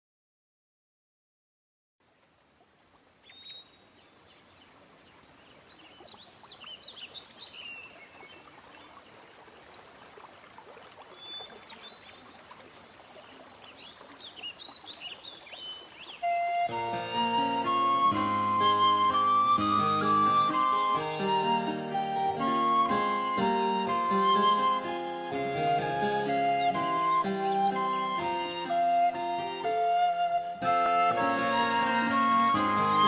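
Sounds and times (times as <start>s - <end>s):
outdoor ambience hiss: 2.0s - 28.5s
songbirds chirping and singing: 13.1s - 16.7s
flute music: 16.1s - 33.0s.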